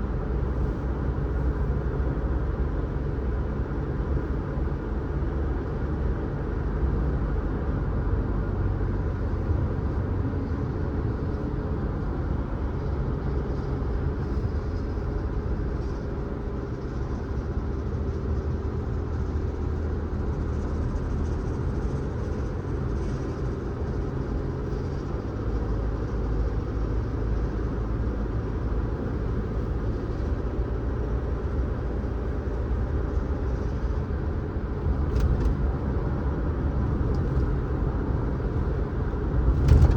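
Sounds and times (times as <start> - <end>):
car driving on road: 0.0 - 39.9.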